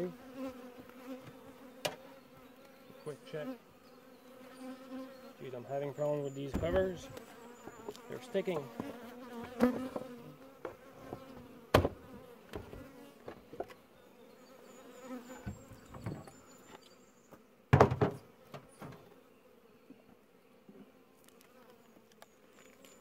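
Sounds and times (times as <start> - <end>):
honeybees humming: 0.0 - 23.0
knocks and scrapes on hive cover: 6.0 - 13.8, 17.7 - 19.1.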